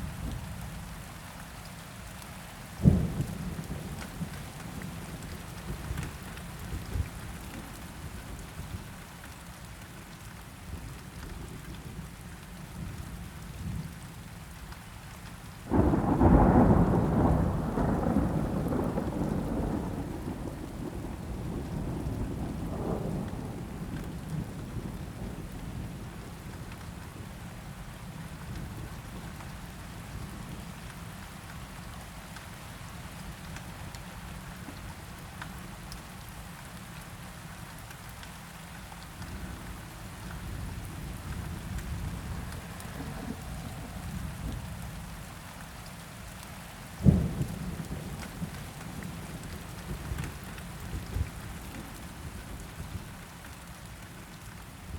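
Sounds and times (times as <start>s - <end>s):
steady rain: 0.0s - 54.9s
rolling thunder: 15.7s - 25.6s.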